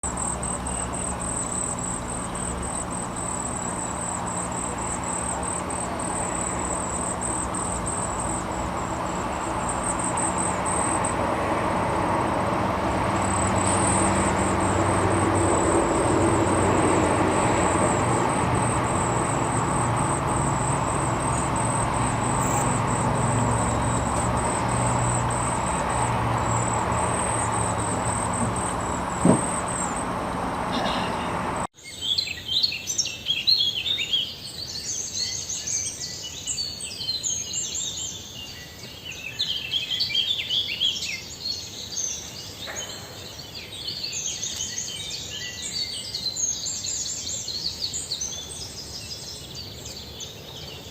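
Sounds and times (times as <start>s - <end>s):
low engine-like drone: 0.0s - 31.7s
pulsing insect trill: 0.0s - 31.7s
sharp knock: 29.2s - 29.6s.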